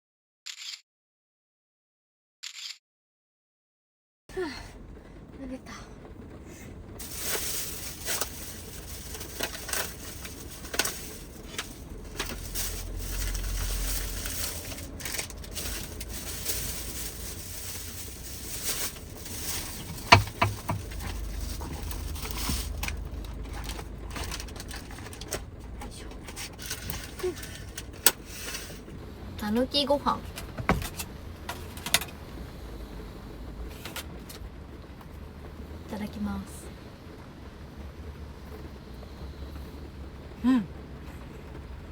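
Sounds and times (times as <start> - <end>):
low rumble: 4.3 - 41.9
rain on a van roof: 4.3 - 41.9
clicks and crinkles of handling: 7.0 - 29.0.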